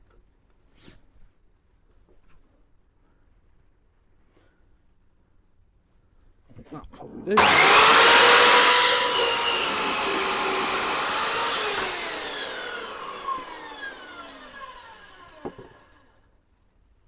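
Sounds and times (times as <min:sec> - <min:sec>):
power saw motor winding down: 0:07.4 - 0:16.0.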